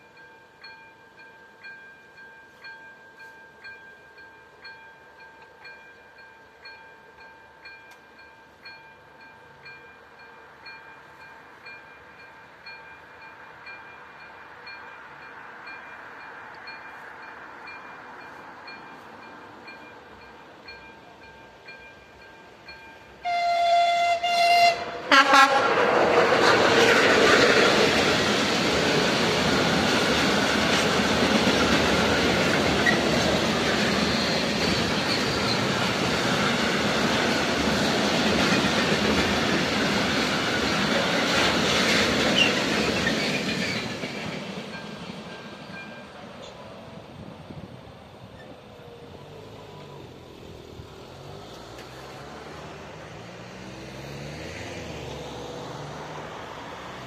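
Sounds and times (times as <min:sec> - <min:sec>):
train horn blasts: 0:23.2 - 0:26.6
train wheels clattering over joints: 0:25.7 - 0:46.5.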